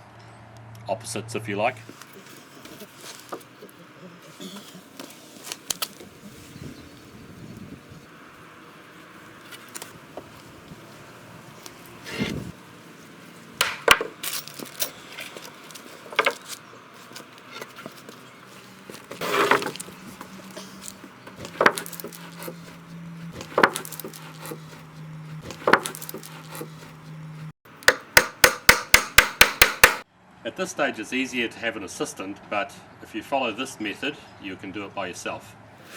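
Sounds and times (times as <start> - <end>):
wooden slats knocking: 13.6 - 14.7, 16.0 - 18.2, 18.8 - 19.9, 21.3 - 22.7, 23.4 - 24.6, 25.5 - 26.8, 27.9 - 30.0.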